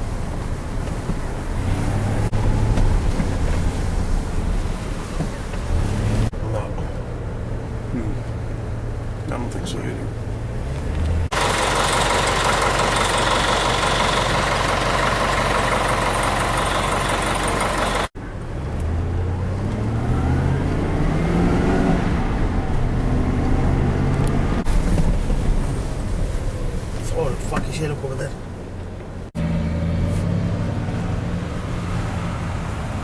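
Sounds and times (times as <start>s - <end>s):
vehicle engine accelerating: 1.6s - 3.9s, 5.6s - 6.9s, 7.6s - 24.7s, 29.4s - 33.0s.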